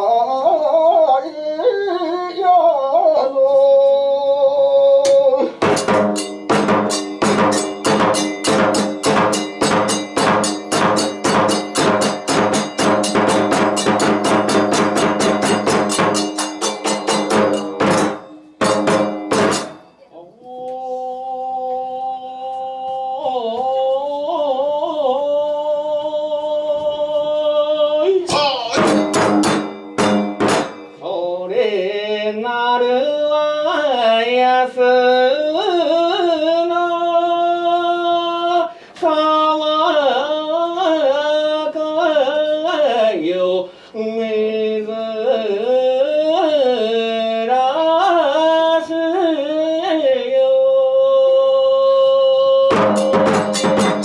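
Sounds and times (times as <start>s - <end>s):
sung chant with ornaments: 0.0s - 18.7s, 19.9s - 30.3s, 30.9s - 54.0s
percussion strikes: 5.0s - 20.1s, 28.3s - 31.2s, 52.6s - 54.0s.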